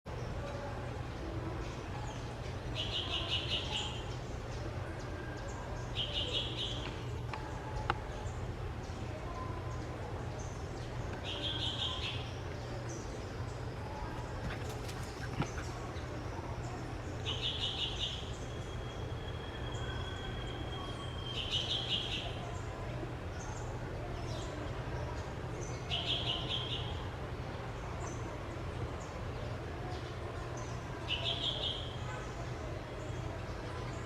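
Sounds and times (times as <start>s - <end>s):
thin steady whistle: 18.5s - 21.5s.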